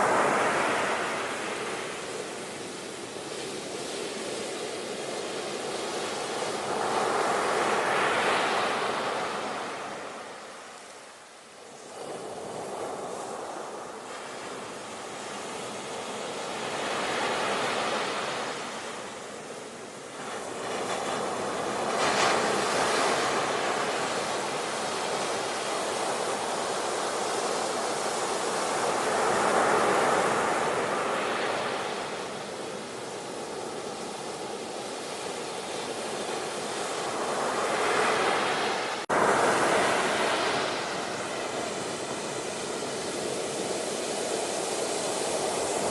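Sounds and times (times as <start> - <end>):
ocean waves breaking: 0.0 - 10.9, 11.7 - 45.9
wave crash: 37.6 - 45.9.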